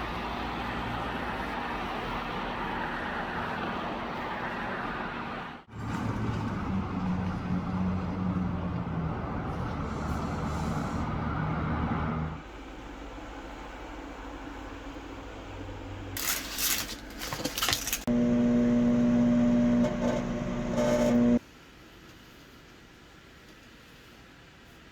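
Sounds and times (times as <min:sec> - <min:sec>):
nearby vehicle engine hum: 0:00.0 - 0:16.2
road traffic noise: 0:00.0 - 0:21.4.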